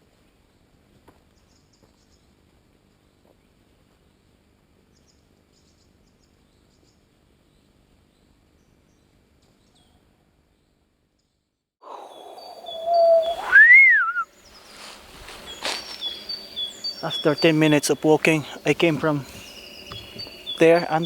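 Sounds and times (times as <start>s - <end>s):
steady whistle-like tone: 11.8s - 14.3s
faint high chirps: 11.8s - 14.9s.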